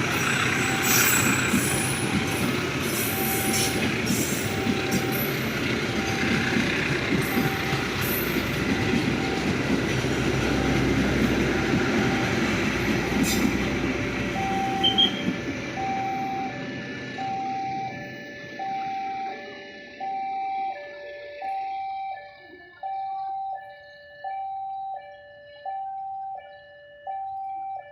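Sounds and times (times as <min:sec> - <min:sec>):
train wheels rumbling on rails: 0:00.0 - 0:19.8
level crossing alarm beeping: 0:00.0 - 0:27.9.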